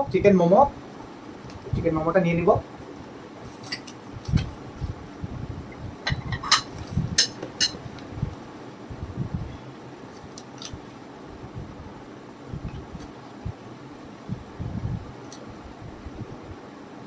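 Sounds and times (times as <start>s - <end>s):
dishes and cutlery clinking: 6.1s - 7.8s.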